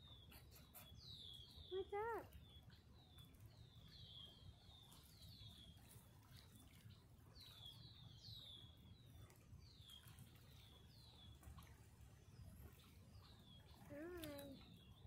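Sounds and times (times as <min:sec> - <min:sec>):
faint high bird peeps: 0:00.0 - 0:02.4.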